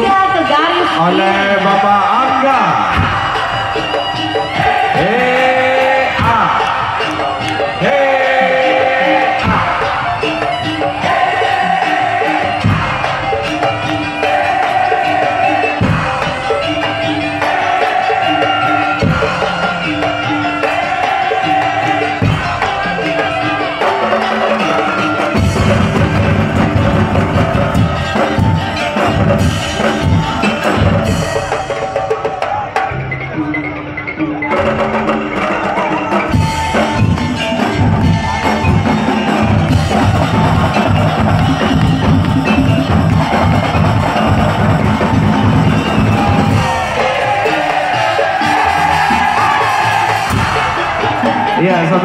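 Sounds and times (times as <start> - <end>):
wooden slit drums and drums: 0.0 - 33.4, 34.4 - 52.0
pitched percussion pattern: 0.0 - 52.0.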